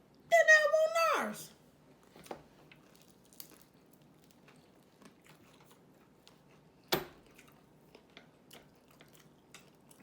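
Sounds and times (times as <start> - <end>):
person chewing food: 2.6 - 10.0.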